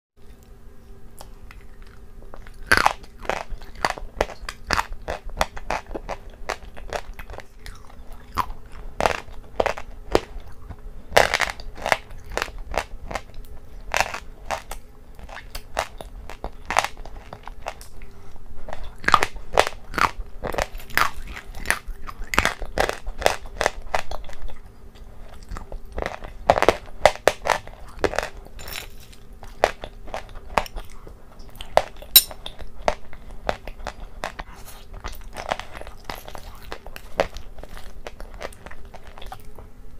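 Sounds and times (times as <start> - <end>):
crunching and chewing: 0.2 - 39.9.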